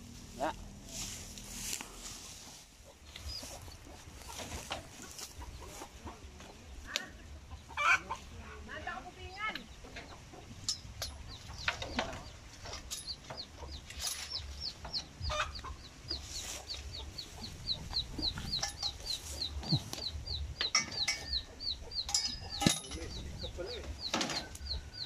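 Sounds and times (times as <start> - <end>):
small bird peeping: 2.8 - 6.8, 11.2 - 25.0.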